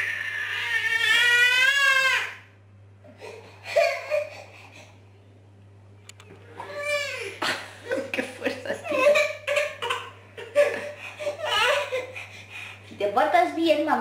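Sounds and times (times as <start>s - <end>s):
woman laughing: 7.3s - 9.6s, 10.4s - 12.0s.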